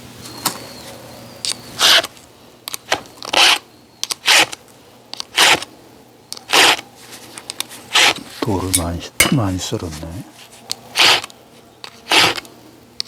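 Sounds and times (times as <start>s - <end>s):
scraping strokes: 5.2s - 5.7s, 6.4s - 8.9s, 9.8s - 12.5s.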